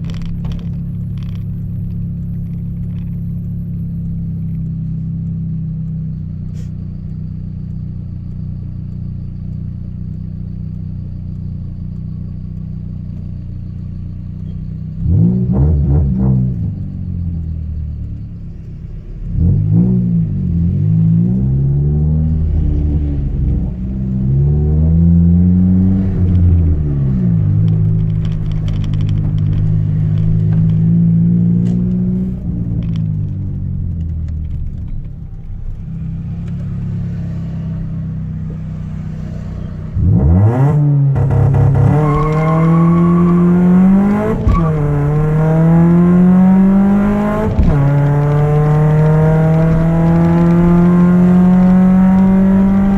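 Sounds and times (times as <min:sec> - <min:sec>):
car engine accelerating through gears: 0:00.0 - 0:52.9.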